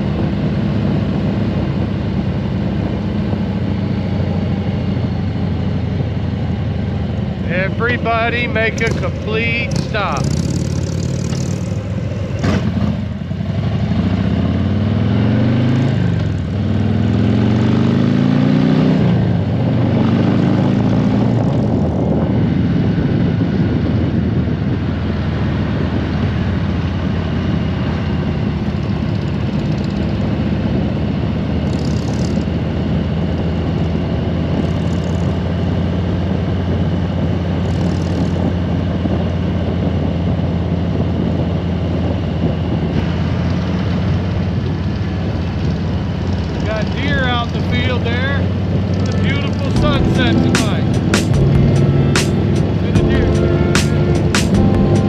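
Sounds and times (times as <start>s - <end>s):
motorcycle engine accelerating: 0.0s - 55.0s
wind noise: 19.0s - 46.0s.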